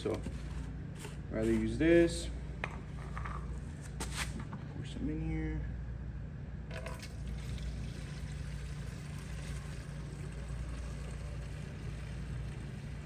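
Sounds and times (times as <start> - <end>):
low background hum: 0.0 - 13.0
liquid pouring: 6.7 - 13.0.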